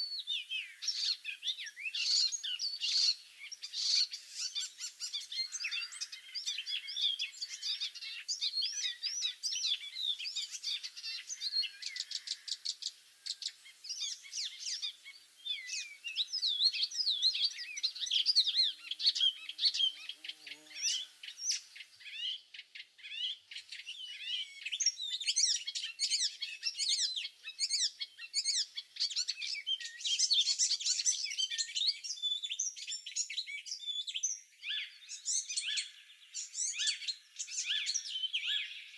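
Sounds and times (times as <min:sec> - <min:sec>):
songbirds singing and chirping: 0:00.0 - 0:38.9.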